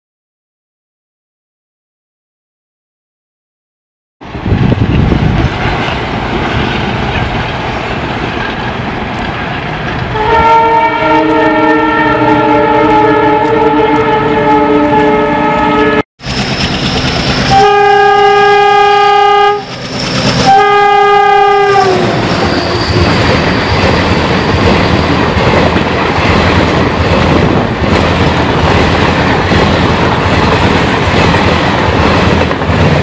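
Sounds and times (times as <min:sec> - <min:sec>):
passenger train running past: 0:04.2 - 0:33.0
train horn blasts: 0:10.1 - 0:16.0, 0:17.5 - 0:19.7, 0:20.4 - 0:23.2.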